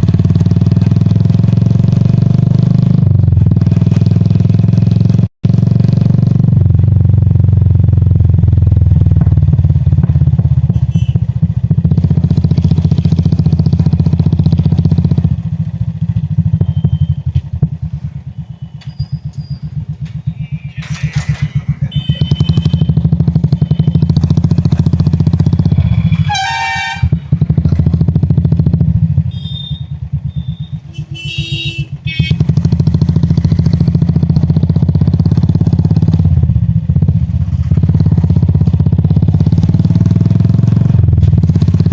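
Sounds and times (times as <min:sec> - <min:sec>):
motorcycle engine thumping: 0:06.3 - 0:41.9
vehicle horns: 0:10.7 - 0:11.3, 0:20.6 - 0:24.9, 0:25.5 - 0:27.4, 0:29.2 - 0:32.6.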